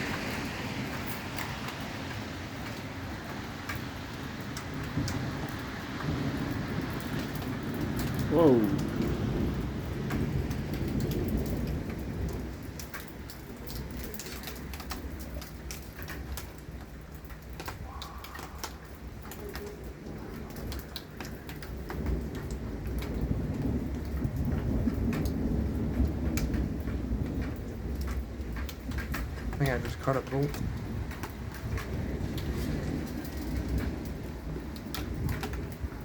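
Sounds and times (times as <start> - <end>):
low rumble of thunder: 0.0 - 36.0
rain falling: 0.0 - 36.0
raindrops ticking on a surface: 0.0 - 36.0.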